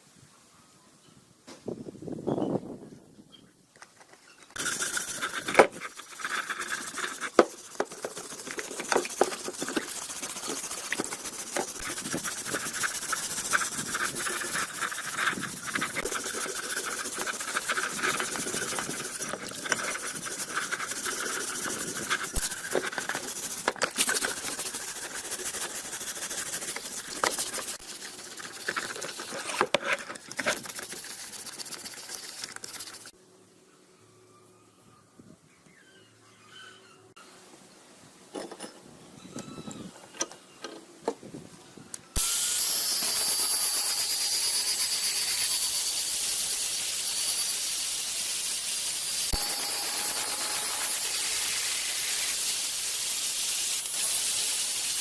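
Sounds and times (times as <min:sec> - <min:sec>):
abrasive tool rasping on metal: 0:04.6 - 0:31.6, 0:49.0 - 0:52.5.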